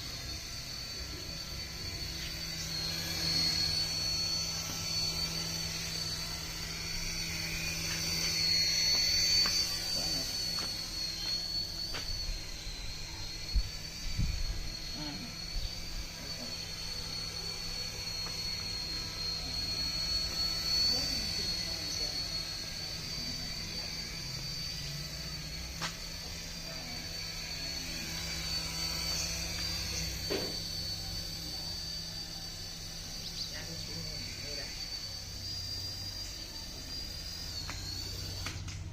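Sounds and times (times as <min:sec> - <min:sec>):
small electric motor whining: 0:00.0 - 0:38.9.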